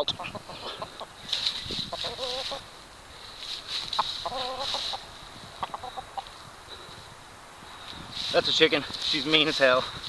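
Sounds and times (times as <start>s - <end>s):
hen clucking: 0.0s - 7.2s
rustling: 0.7s - 10.0s.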